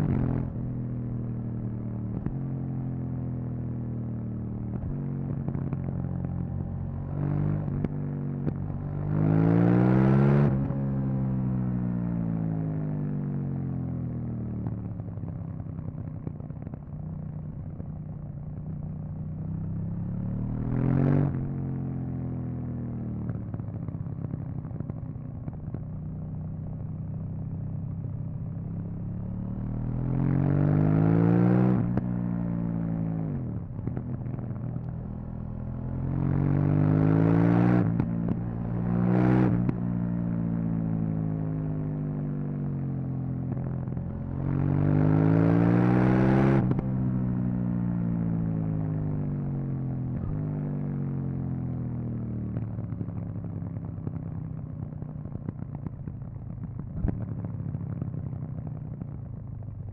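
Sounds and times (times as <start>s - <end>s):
motorcycle engine revving: 29.0s - 42.0s, 43.4s - 50.5s.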